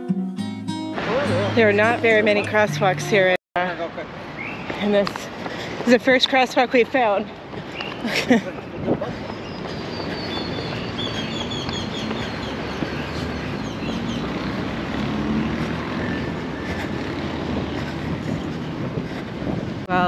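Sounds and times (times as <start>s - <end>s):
street traffic: 0.8s - 20.0s
vehicle passing: 1.0s - 6.2s, 6.8s - 19.9s
bird chirping: 7.7s - 17.8s.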